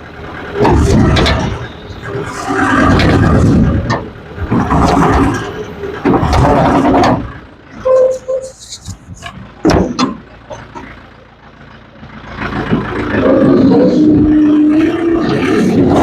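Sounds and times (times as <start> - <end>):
tractor running: 0.0 - 16.0
brief squeal: 7.8 - 8.7.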